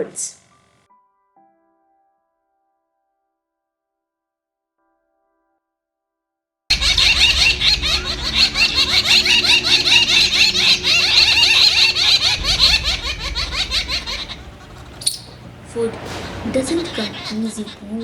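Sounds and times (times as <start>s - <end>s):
flock of birds chattering: 6.7s - 18.0s.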